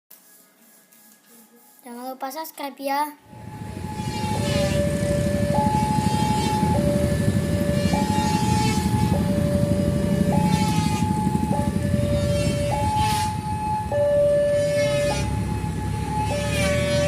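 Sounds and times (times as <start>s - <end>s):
heavy vehicle engine rumble: 3.3s - 17.0s
two-tone warning signal: 3.3s - 17.0s.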